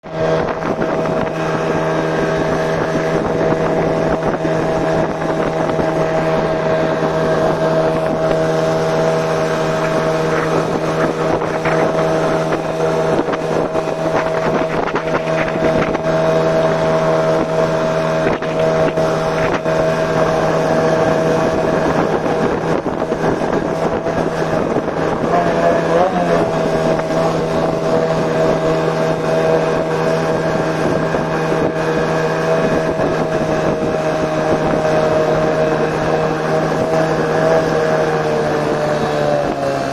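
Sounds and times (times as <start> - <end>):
outboard motor running: 0.0 - 39.9
wind on microphone: 0.0 - 39.9.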